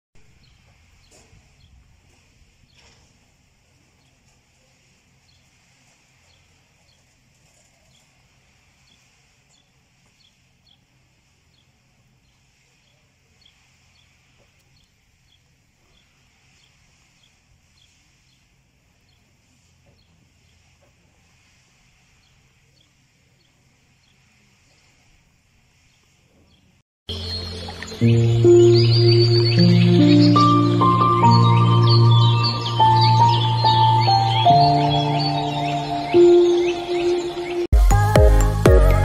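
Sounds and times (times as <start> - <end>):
small bird chirping: 25.8 - 37.7.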